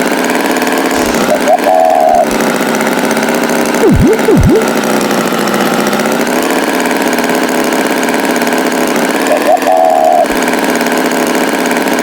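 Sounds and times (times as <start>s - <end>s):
cartoon swoops: 3.8s - 4.7s.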